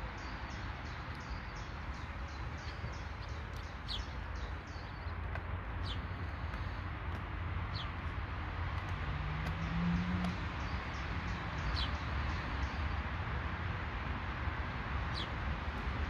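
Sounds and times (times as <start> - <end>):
bird chirping: 0.1 - 5.2.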